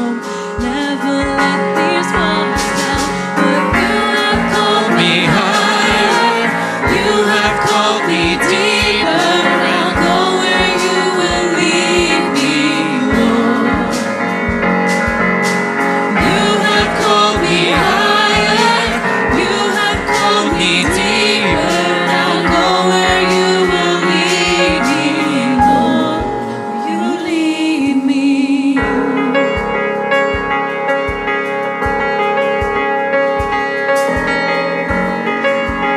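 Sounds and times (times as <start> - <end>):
lead voice and choir singing: 0.0 - 14.6, 16.1 - 29.8
band playing: 0.0 - 35.9.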